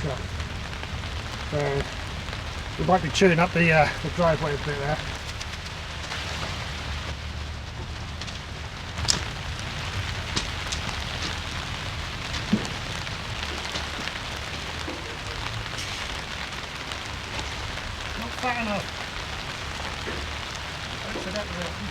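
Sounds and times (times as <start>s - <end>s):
rain on plastic sheeting: 0.0s - 21.9s.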